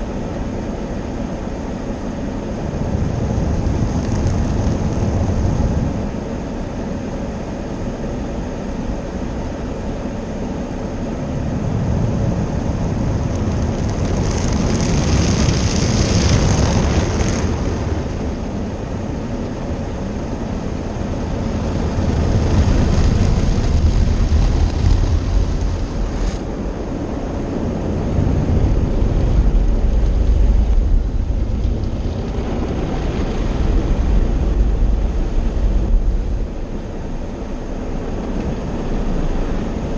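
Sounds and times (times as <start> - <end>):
car wash machinery: 0.0 - 39.9.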